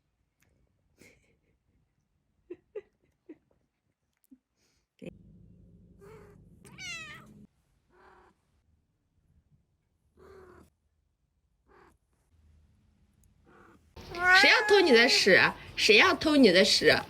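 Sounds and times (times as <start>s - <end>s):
low steady hum: 5.0s - 7.5s
cat meowing: 6.0s - 8.4s, 11.7s - 12.0s, 13.5s - 15.2s.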